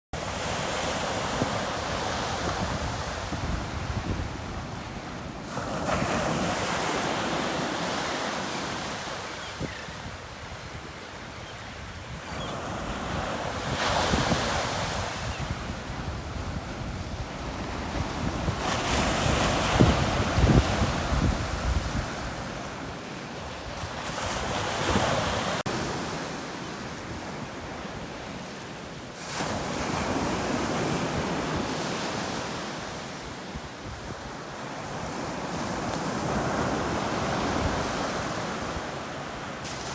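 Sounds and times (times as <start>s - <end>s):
waves breaking on beach: 0.2s - 39.9s
wind buffeting microphone: 1.4s - 6.6s, 13.0s - 22.7s.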